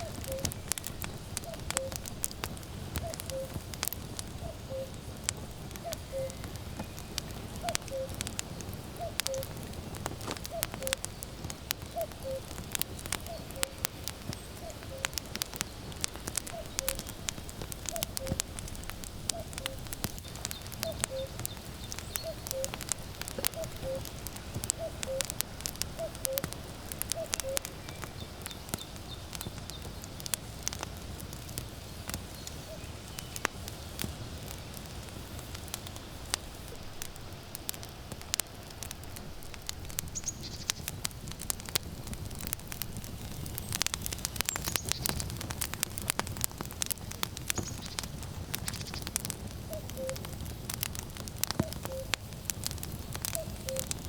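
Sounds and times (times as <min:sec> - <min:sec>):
cuckoo calling: 0:00.0 - 0:02.1, 0:03.0 - 0:03.6, 0:04.3 - 0:05.0, 0:05.8 - 0:08.3, 0:09.0 - 0:09.6, 0:10.3 - 0:17.2, 0:17.9 - 0:18.5, 0:19.3 - 0:29.9, 0:49.7 - 0:50.3, 0:51.6 - 0:52.2, 0:53.3 - 0:54.0
firewood crackling: 0:00.0 - 0:54.0.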